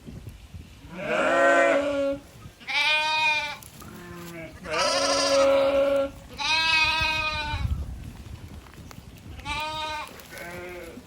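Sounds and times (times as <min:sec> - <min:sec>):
goats bleating: 0:01.0 - 0:07.6, 0:09.4 - 0:11.0.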